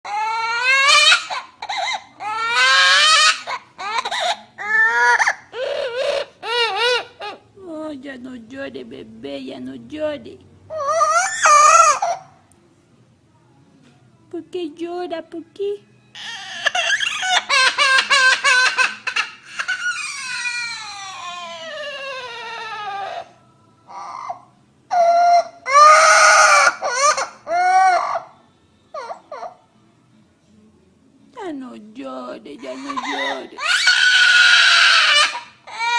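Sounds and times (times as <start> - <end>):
high-pitched baby-like crying: 0.0 - 7.5, 10.7 - 12.4, 16.1 - 29.6, 32.6 - 35.9.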